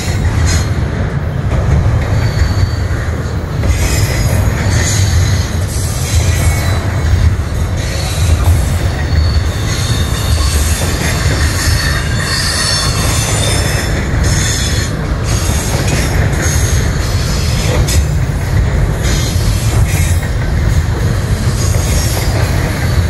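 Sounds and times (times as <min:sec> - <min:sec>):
rumble of train wheels on rail: 0:00.0 - 0:23.0
high wheel squeal: 0:02.1 - 0:18.1.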